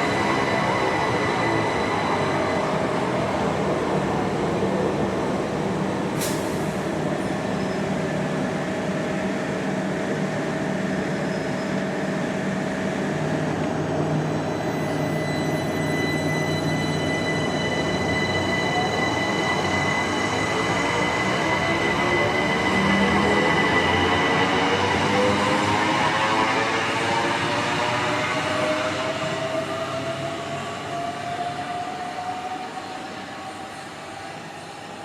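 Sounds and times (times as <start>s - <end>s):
electric train rumbling: 0.0s - 35.0s.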